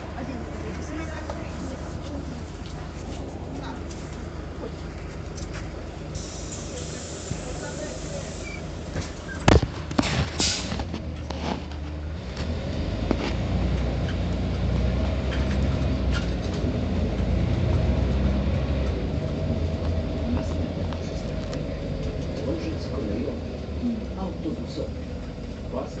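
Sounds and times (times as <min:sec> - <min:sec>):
bus diesel engine: 0:00.0 - 0:26.0
air hiss: 0:06.2 - 0:08.7.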